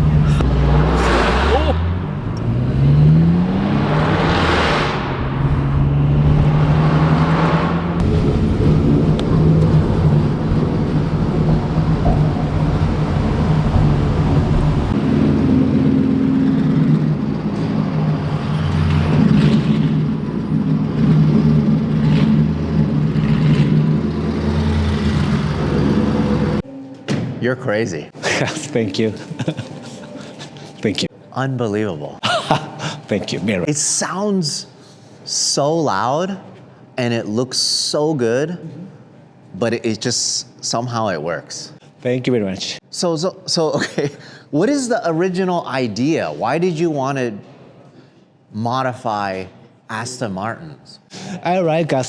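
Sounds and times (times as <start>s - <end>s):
loud car exhaust: 0.0s - 26.6s
wind and road noise: 0.0s - 26.6s.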